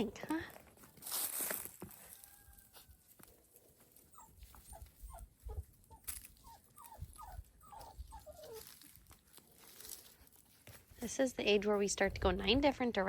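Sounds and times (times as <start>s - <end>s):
puppies whimpering: 4.0s - 8.9s.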